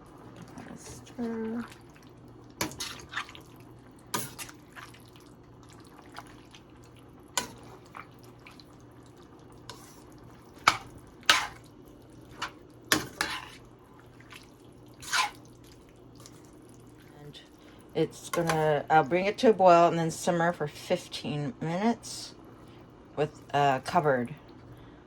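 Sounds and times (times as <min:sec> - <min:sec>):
wet squelching: 0:00.4 - 0:06.7
spoon scraping a pot: 0:09.7 - 0:11.6, 0:12.4 - 0:13.6, 0:15.0 - 0:15.4.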